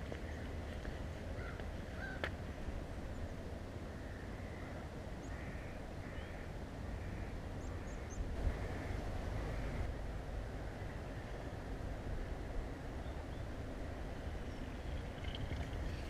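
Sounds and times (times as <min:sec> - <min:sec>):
steady low rumble: 0:00.0 - 0:16.0
harsh crow-like calls: 0:01.4 - 0:02.3, 0:04.0 - 0:09.9.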